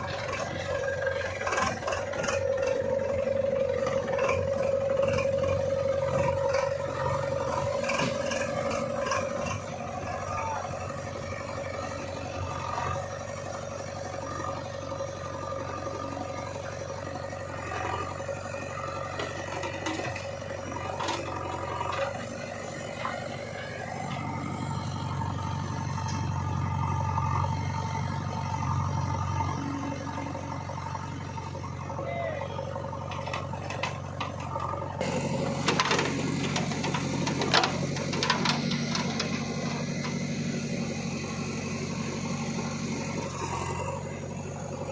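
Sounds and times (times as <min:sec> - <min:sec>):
diesel engine running under load: 0:00.0 - 0:44.9
machine clatters and knocks: 0:35.6 - 0:39.3.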